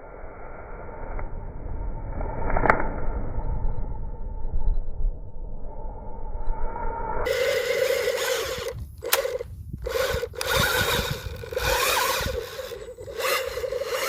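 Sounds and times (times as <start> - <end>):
small electric motor whining: 7.3 - 14.0.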